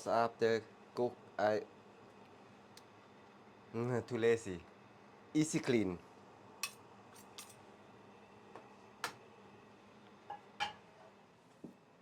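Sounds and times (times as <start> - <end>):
kitchen utensils clicking and tapping: 6.6 - 7.6.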